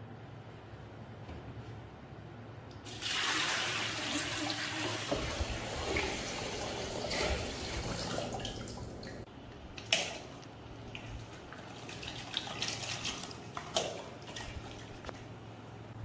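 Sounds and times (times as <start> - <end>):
water pouring: 2.9 - 9.3.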